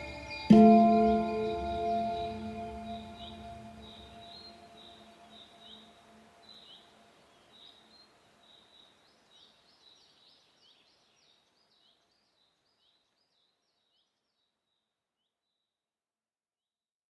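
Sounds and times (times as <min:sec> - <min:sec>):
low instrument ringing: 0:00.0 - 0:05.4
faint birds chirping: 0:00.0 - 0:15.7.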